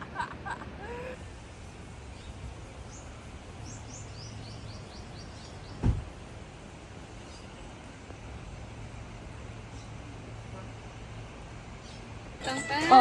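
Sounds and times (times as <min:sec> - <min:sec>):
outdoor background noise: 0:00.0 - 0:13.0
bird chirping: 0:01.9 - 0:06.0, 0:07.2 - 0:07.7, 0:11.8 - 0:12.8
loud low thump: 0:05.6 - 0:06.2.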